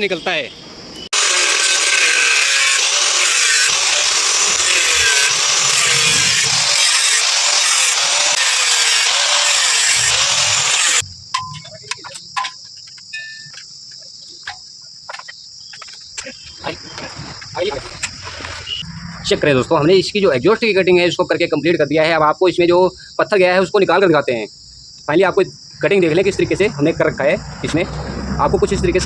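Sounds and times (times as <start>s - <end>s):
angle grinder cutting metal: 1.2s - 11.0s
crickets chirping: 2.0s - 29.0s.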